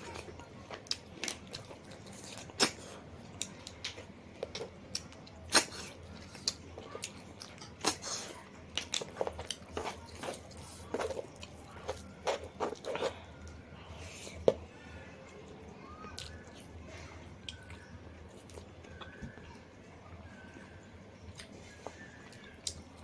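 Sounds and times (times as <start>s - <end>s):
person chewing and crunching: 0.0s - 14.6s, 15.9s - 16.8s, 17.4s - 19.4s.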